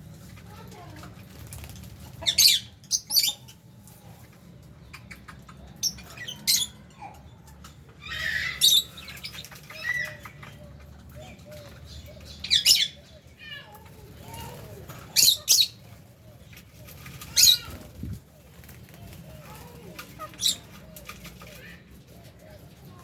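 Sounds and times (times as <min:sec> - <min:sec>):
lovebirds screeching: 0:02.2 - 0:03.6, 0:04.8 - 0:07.2, 0:08.0 - 0:21.8.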